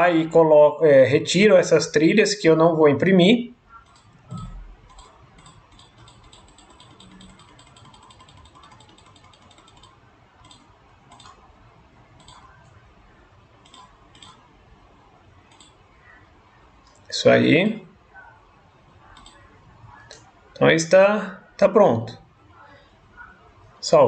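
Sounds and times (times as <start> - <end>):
computer mouse clicks: 3.7 - 11.5, 12.2 - 12.8, 13.6 - 14.5, 15.5 - 15.9, 19.1 - 19.5
scroll wheel ticking: 3.8 - 11.4, 12.2 - 12.7, 13.6 - 14.5.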